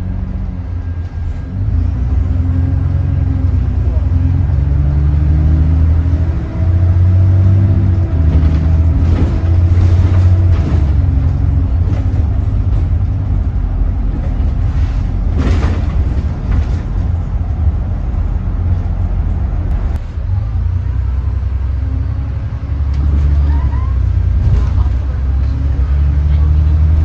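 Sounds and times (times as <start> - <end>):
bus diesel engine droning: 0.0 - 27.0
knocks and rattles: 8.1 - 18.3.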